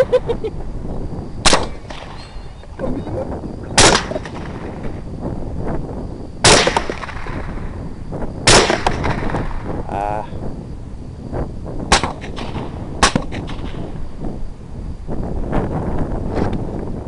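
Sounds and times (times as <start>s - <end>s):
wind rumble on microphone: 0.0s - 17.0s
suppressed rifle shots: 1.4s - 2.3s, 3.8s - 4.8s, 6.4s - 7.5s, 8.5s - 9.5s, 11.9s - 13.8s.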